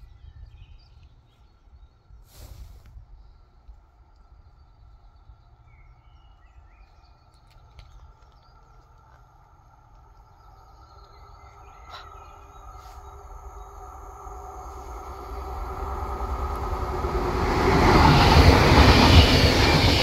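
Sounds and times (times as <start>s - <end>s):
passenger train passing: 10.9s - 20.0s.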